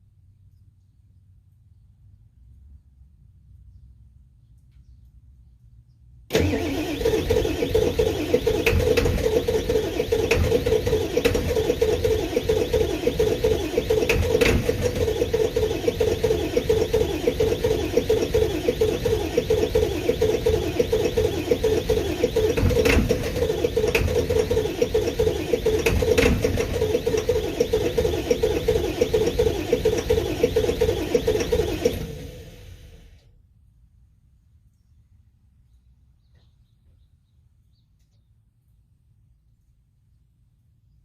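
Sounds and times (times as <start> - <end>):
diesel engine idling: 6.3 - 33.2.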